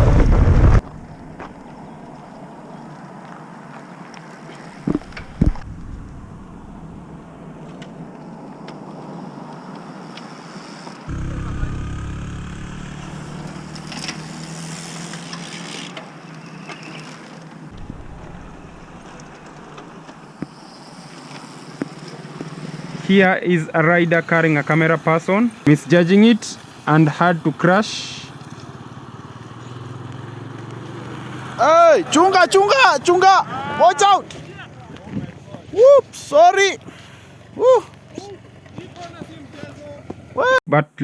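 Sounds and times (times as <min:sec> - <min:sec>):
road noise: 0:00.0 - 0:40.6
vehicle engine: 0:04.7 - 0:08.5, 0:11.1 - 0:16.2, 0:17.4 - 0:20.4, 0:21.5 - 0:40.6.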